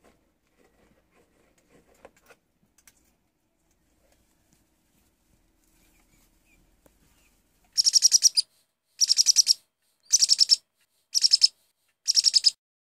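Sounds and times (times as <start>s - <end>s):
bird chirping: 7.2s - 12.6s.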